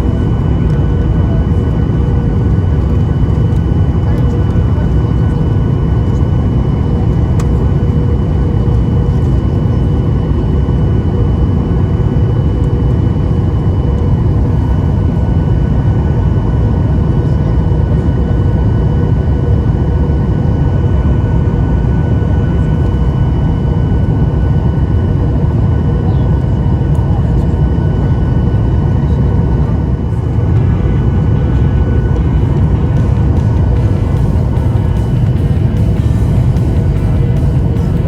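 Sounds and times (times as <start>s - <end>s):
jet engine drone in cabin: 0.0s - 38.0s
airflow past fuselage: 29.8s - 38.0s.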